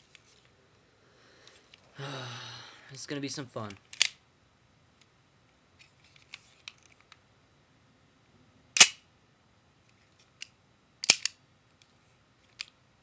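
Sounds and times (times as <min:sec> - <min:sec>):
pistol action light clicks: 0:08.8 - 0:09.0, 0:11.0 - 0:11.4.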